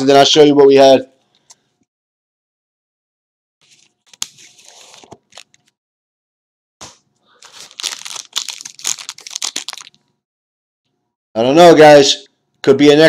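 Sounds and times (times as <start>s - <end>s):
card packaging tearing and crinkling: 3.6s - 5.7s, 6.8s - 10.0s.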